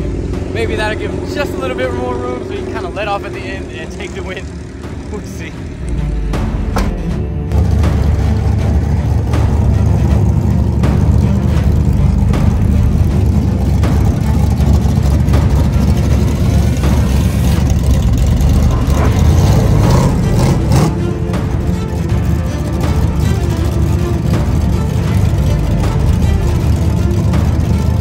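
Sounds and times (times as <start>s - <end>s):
drag-race car engine rumbling: 0.0s - 28.0s
engine pops: 5.8s - 21.0s.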